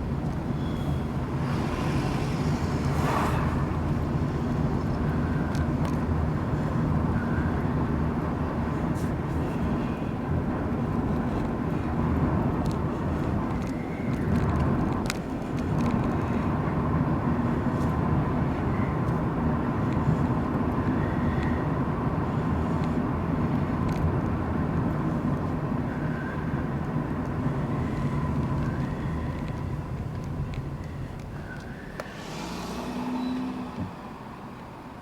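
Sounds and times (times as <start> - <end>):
car engine and road noise: 0.0 - 35.0.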